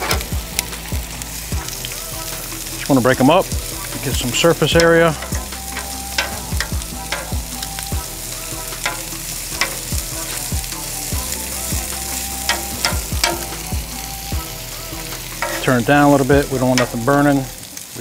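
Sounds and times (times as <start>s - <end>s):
vegetables sizzling on a griddle: 0.0s - 18.0s
metal tongs clicking and scraping: 4.8s - 7.4s, 8.8s - 9.9s, 12.5s - 13.7s, 15.3s - 15.9s.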